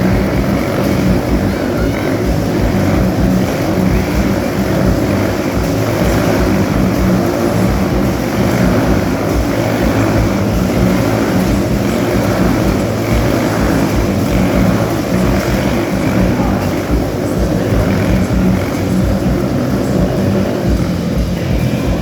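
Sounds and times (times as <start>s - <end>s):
motorcycle engines at high revs: 0.0s - 22.0s.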